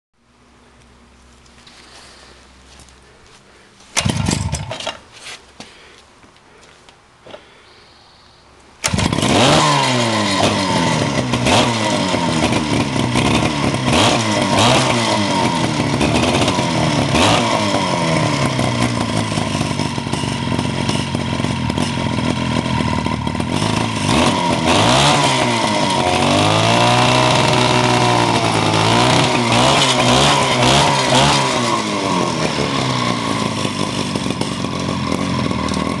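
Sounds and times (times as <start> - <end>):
chainsaw revving: 3.9 - 5.0, 8.8 - 36.0.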